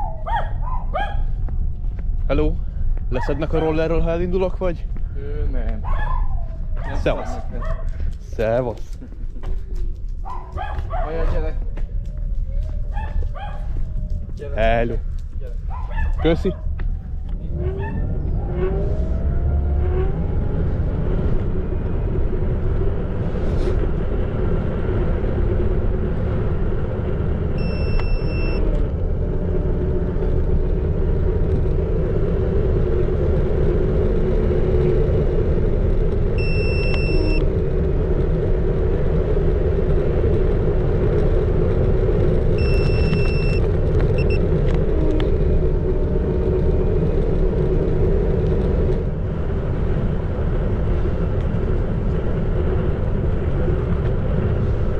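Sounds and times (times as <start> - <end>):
wind and tyre rumble: 0.0 - 54.9
short high electronic beeps: 42.6 - 43.6.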